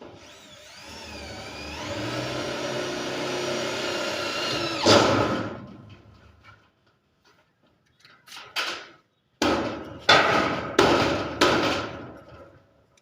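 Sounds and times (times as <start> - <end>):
power tool motor whine: 0.0 - 5.4.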